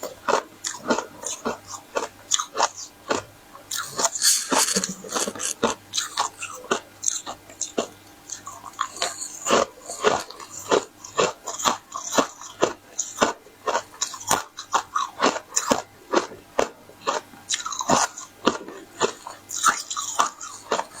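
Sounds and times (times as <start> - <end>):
person crunching crisp flatbread: 0.3 - 6.8.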